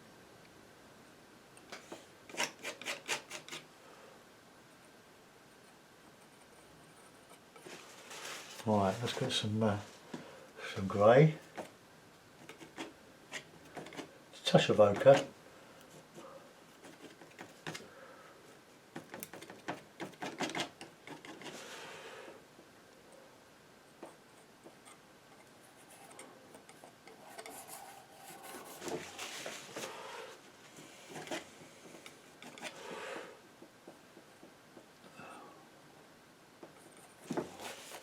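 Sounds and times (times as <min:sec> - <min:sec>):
painting knife scraping and tapping: 0:01.7 - 0:03.6, 0:12.4 - 0:15.3, 0:18.9 - 0:21.6, 0:24.0 - 0:27.9, 0:31.1 - 0:32.8.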